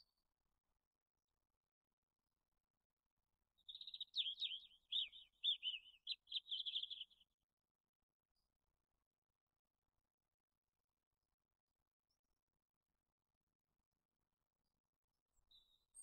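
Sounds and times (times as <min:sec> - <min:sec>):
songbird chirping: 0:03.6 - 0:07.3.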